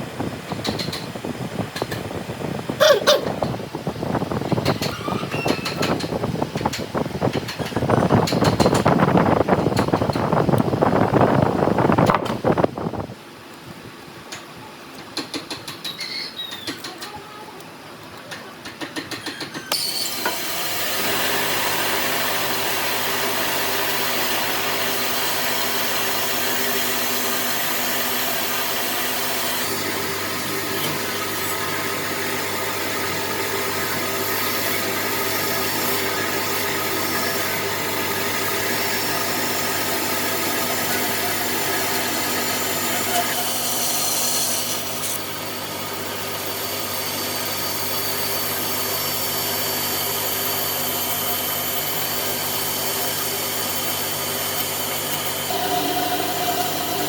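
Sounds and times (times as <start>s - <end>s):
power tool motor hum: 19.7s - 57.0s.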